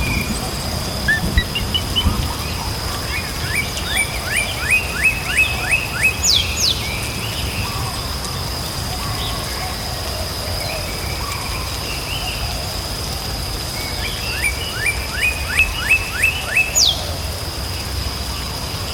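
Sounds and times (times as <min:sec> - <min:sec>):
birds chirping rising notes: 0:00.0 - 0:04.8
bird falling whistles: 0:01.1 - 0:02.4.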